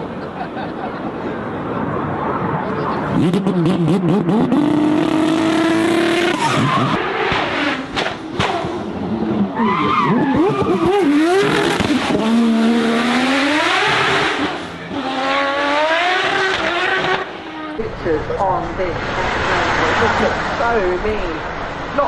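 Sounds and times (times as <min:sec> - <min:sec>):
car engine revving hard: 0:03.1 - 0:08.9, 0:10.1 - 0:17.4.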